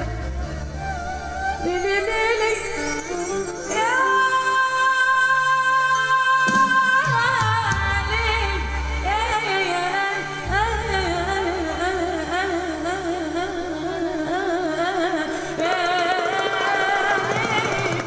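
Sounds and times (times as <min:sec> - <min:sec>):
person singing ornamented melody: 0:00.8 - 0:07.8.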